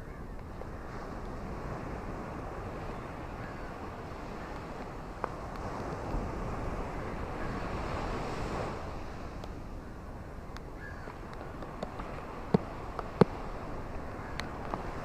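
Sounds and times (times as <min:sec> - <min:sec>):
ocean waves washing ashore: 0:00.0 - 0:15.0
faint clicks: 0:14.3 - 0:14.9.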